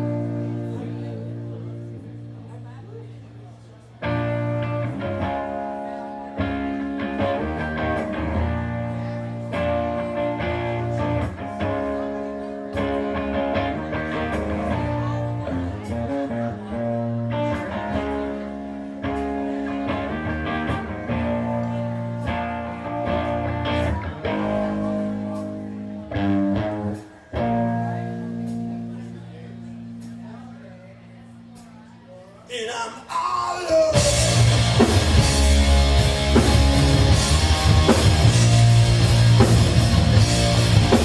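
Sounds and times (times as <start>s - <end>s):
rock band playing: 0.0s - 2.7s, 4.0s - 30.6s, 32.5s - 41.0s
drum and cymbal hits: 34.0s - 41.0s.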